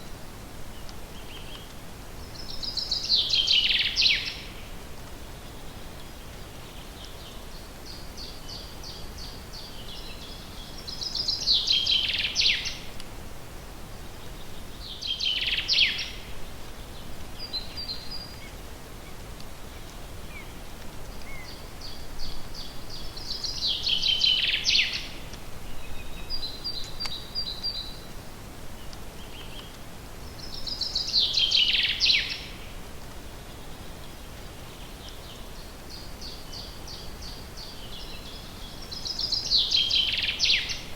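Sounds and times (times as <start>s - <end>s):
songbird singing: 0.0s - 13.1s, 13.9s - 40.9s
steady background hiss: 0.0s - 40.9s.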